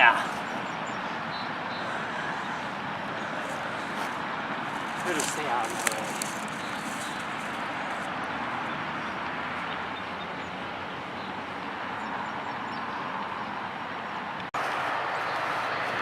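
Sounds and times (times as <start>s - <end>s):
steady rushing noise: 13.2s - 16.0s.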